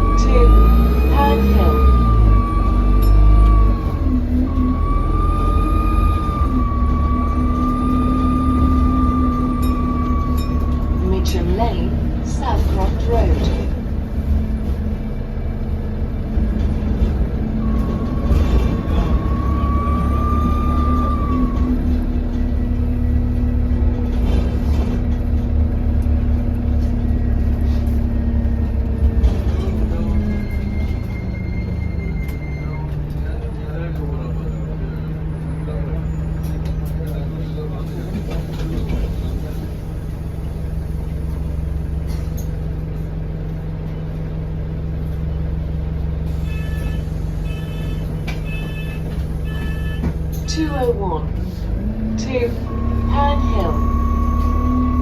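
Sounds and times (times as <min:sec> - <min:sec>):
bus engine rumbling: 0:00.0 - 0:55.0
turbo whistle: 0:52.6 - 0:55.0.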